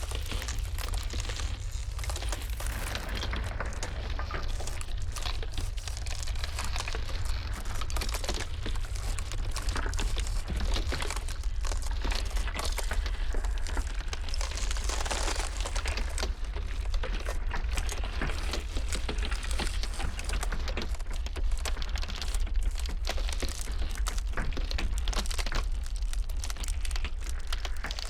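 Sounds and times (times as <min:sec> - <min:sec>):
blizzard wind rumbling: 0:00.0 - 0:19.8
ice cracking and crackling: 0:00.0 - 0:28.0.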